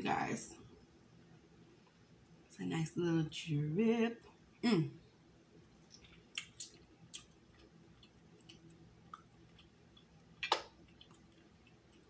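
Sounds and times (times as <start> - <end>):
wet mouth clicks and smacks: 5.9 - 12.0.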